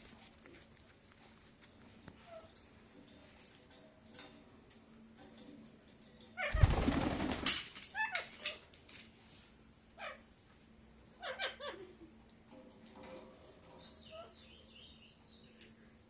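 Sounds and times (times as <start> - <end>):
parakeet calls: 11.2 - 11.9.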